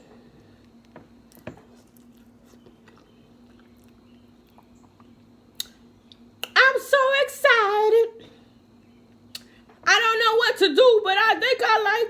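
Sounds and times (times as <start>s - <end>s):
faint steady hum: 0.0s - 12.0s
person chewing: 1.3s - 6.5s
mouth smacks and clicks: 1.9s - 6.6s.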